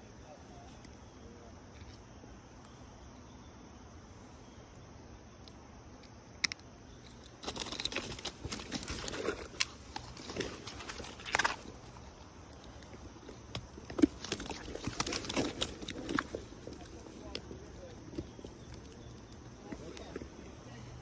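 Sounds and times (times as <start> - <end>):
fish handling clicks and rustles: 6.4 - 20.8.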